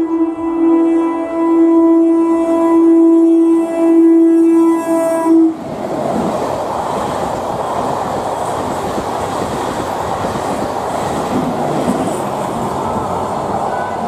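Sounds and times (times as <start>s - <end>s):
train passing at speed: 0.0s - 14.0s.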